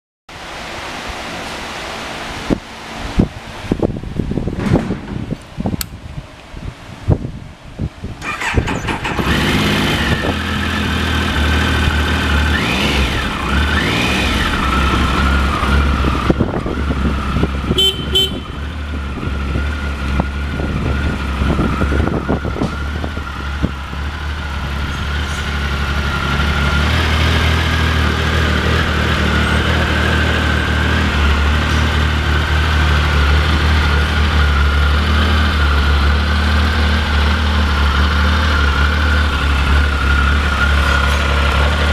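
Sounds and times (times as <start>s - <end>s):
higher engine tone rising and falling: 8.2s - 17.8s, 18.9s - 41.9s
motorcycle engine idling: 14.4s - 41.9s.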